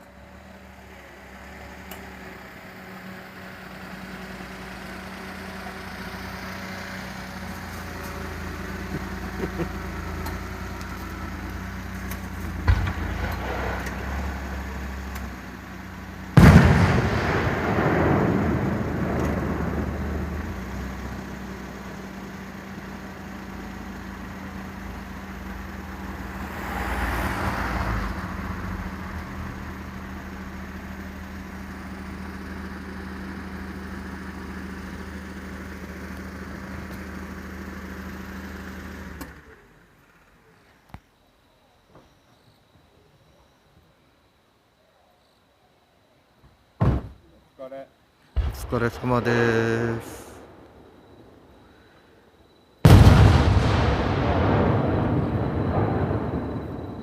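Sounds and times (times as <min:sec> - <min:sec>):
fireworks crackling: 0:04.7 - 0:22.0, 0:48.3 - 0:51.8, 0:52.8 - 0:57.0
firework shell burst: 0:12.4 - 0:15.3, 0:16.4 - 0:19.8
fireworks bangs: 0:12.4 - 0:15.6, 0:16.2 - 0:21.1, 0:48.3 - 0:52.0, 0:52.8 - 0:57.0.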